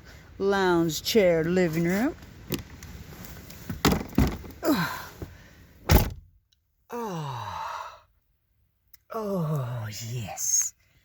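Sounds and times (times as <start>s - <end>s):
knocks and thumps in vehicle: 3.6s - 4.6s, 5.2s - 6.3s
person groaning: 4.6s - 5.1s, 6.9s - 8.0s.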